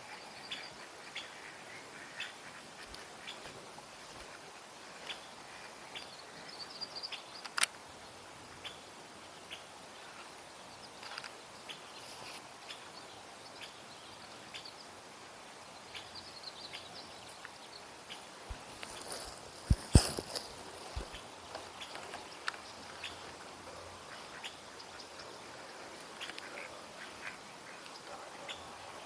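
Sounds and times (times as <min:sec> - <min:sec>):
small clicks: 0:07.4 - 0:07.8.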